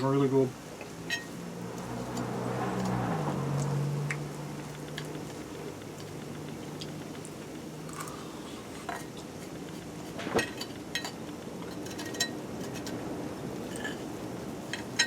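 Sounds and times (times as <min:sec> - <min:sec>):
cutlery clinking on cookware: 0:01.0 - 0:01.4, 0:10.2 - 0:13.0, 0:13.7 - 0:14.0.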